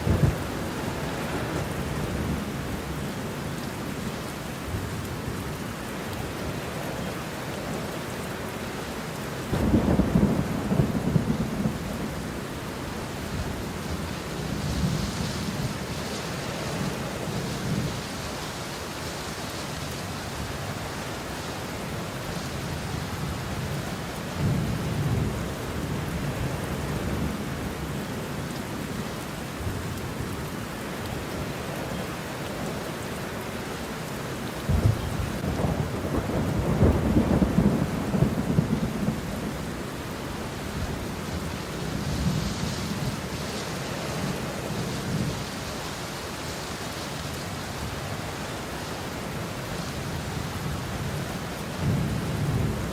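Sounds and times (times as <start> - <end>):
sharp thunderclap: 0.0 - 0.5, 9.5 - 11.8
rolling thunder: 0.0 - 2.4, 9.5 - 12.2, 34.6 - 39.8
heavy rain: 0.0 - 52.9.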